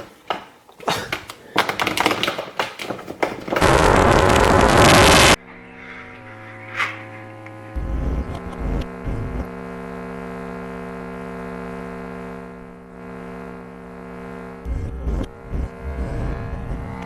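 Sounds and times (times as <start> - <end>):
electrical hum: 3.6 - 17.0.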